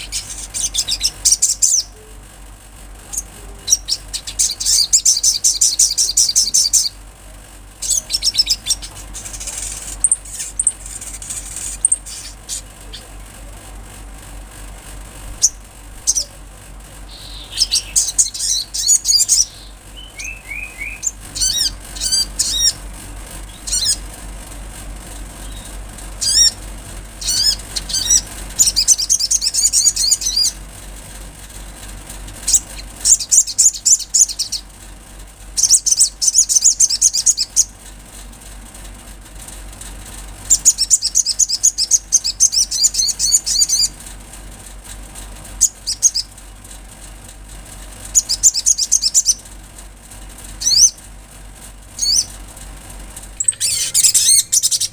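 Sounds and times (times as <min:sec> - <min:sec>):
bird chirping: 0:00.0 - 0:02.2, 0:03.1 - 0:07.0, 0:07.8 - 0:13.1, 0:15.4 - 0:16.4, 0:17.1 - 0:22.8, 0:23.4 - 0:24.1, 0:25.4 - 0:26.6, 0:27.2 - 0:30.6, 0:32.4 - 0:34.7, 0:35.6 - 0:37.8, 0:40.5 - 0:44.0, 0:45.6 - 0:46.4, 0:48.1 - 0:49.5, 0:50.6 - 0:51.0, 0:52.0 - 0:52.4, 0:53.4 - 0:54.9
steady low hum: 0:00.0 - 0:54.9.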